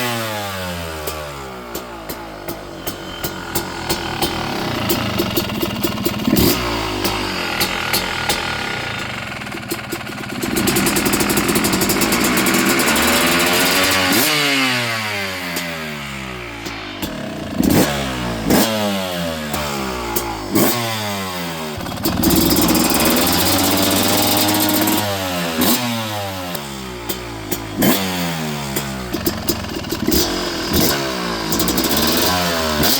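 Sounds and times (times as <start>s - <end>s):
two-stroke dirt bike revving: 0.0s - 32.9s.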